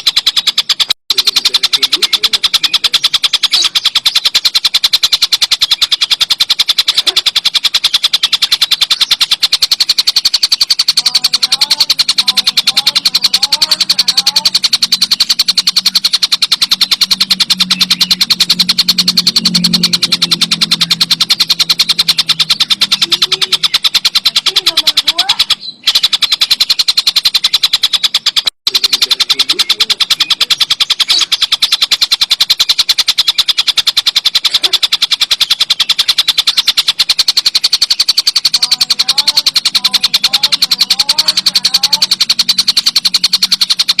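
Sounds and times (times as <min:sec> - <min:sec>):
kingfisher chattering call: 0:00.0 - 0:44.0.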